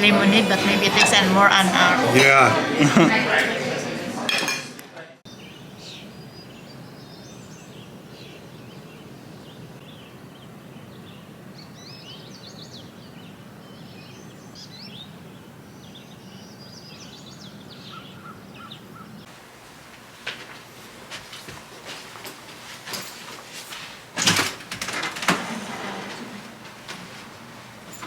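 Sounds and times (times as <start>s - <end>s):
birds chirping: 0.0s - 3.2s, 5.3s - 19.3s
low background noise: 0.0s - 28.0s.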